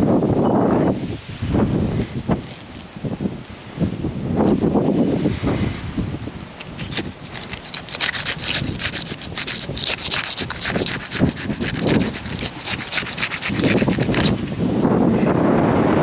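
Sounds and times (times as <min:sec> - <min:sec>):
shingles crackling and scraping: 0:06.6 - 0:14.6.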